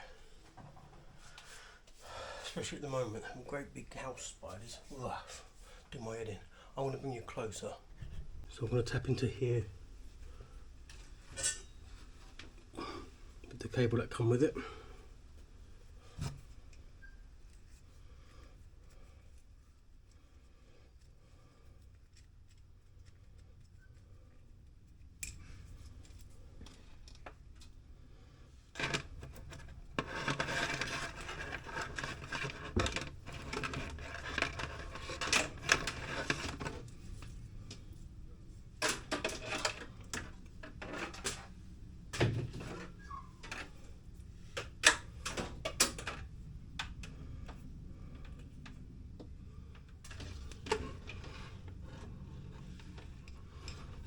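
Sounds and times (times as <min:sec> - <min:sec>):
cable rustling: 0:28.7 - 0:54.0.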